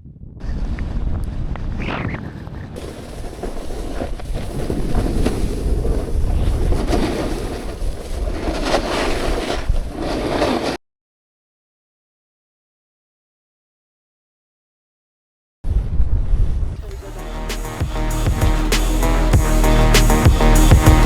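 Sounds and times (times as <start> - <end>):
snowboard sliding on snow: 2.8 - 10.8.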